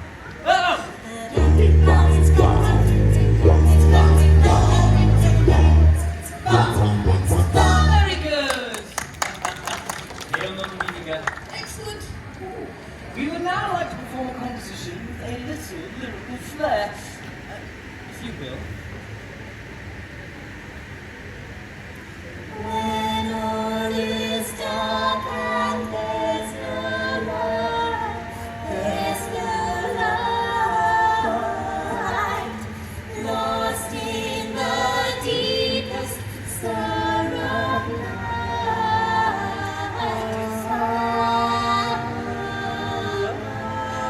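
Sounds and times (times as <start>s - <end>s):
choir singing in close harmony: 1.0s - 8.2s, 22.5s - 44.0s.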